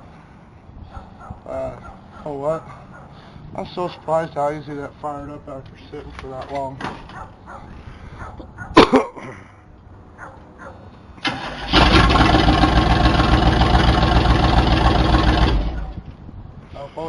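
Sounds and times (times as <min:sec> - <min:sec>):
engine cranking and running: 0:11.2 - 0:16.0.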